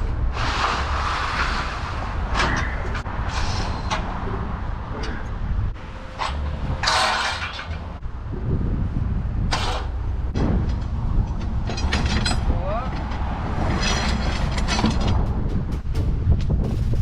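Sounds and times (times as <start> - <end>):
truck diesel engine rumbling: 0.0 - 17.0
air brake hiss bursts: 3.3 - 4.0.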